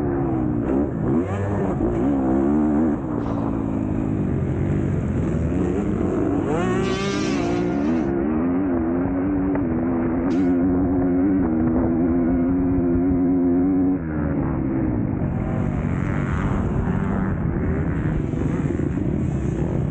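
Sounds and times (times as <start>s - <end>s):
motocross bike engine revving: 0.0s - 19.9s.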